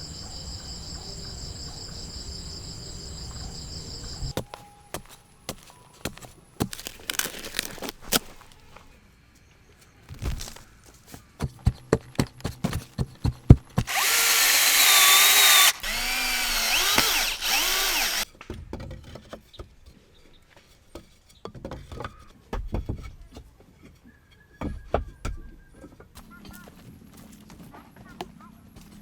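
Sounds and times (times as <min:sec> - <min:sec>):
power tool motor whining: 0:13.8 - 0:18.2.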